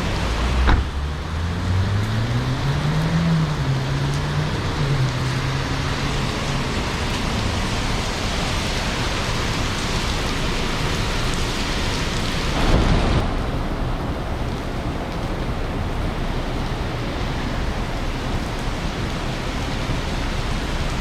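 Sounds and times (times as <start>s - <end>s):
heavy rain hiss: 0.0s - 21.0s
low rumble: 12.5s - 17.8s.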